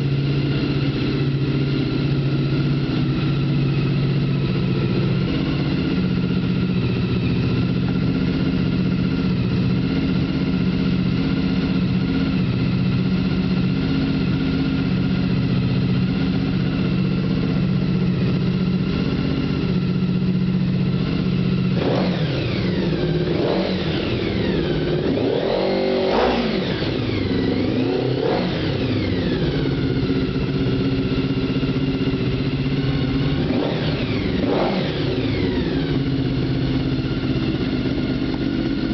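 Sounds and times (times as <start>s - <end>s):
motorcycle engine idling and revving: 0.0s - 38.9s.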